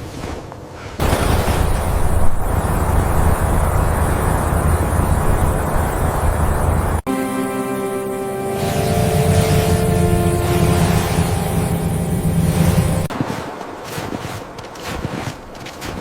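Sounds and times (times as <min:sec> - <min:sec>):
strong blizzard wind blowing: 0:00.0 - 0:16.0
steady music tones: 0:02.1 - 0:13.1.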